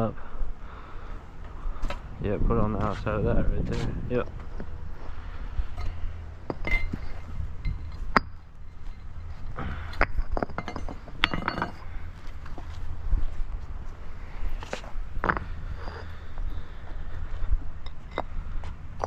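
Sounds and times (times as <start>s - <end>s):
steady low rumble: 0.0s - 19.0s
concrete pavers clinking together: 3.6s - 12.8s, 14.6s - 16.3s, 17.8s - 18.4s.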